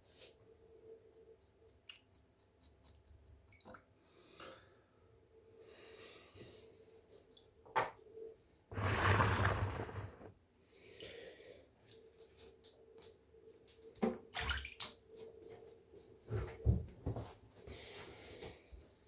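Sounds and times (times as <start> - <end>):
water splashing: 8.7 - 10.3.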